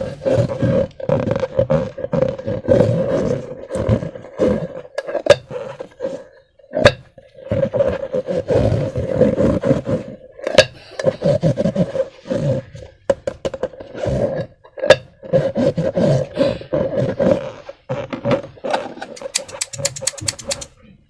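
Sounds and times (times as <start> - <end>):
sharp clicks: 19.1 - 20.7.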